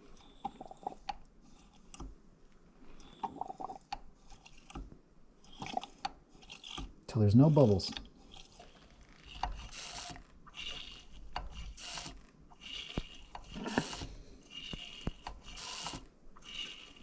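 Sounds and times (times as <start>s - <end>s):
piston pumping with hissing rub: 8.6s - 17.0s.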